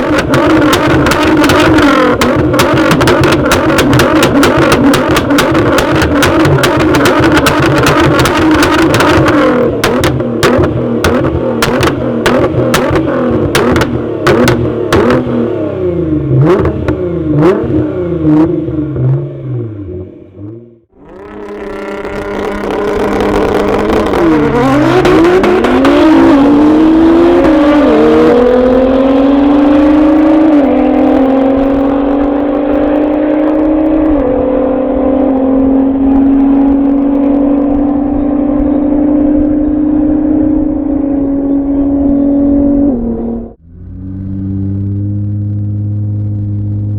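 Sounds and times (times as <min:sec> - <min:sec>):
exhaust pops: 0:00.0 - 0:19.2, 0:20.9 - 0:34.3
car accelerating through gears: 0:00.0 - 0:46.9
car engine revving: 0:00.0 - 0:46.9.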